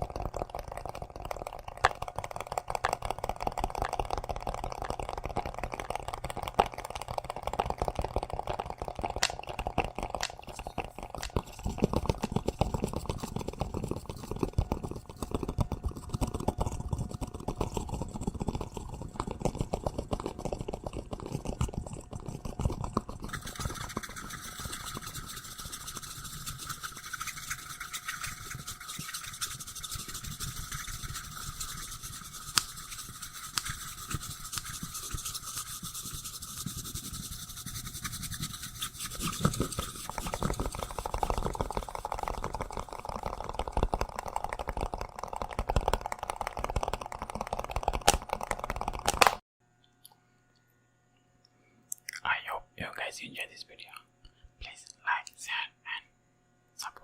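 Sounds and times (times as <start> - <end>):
scratching at microphone: 2.1 - 49.4.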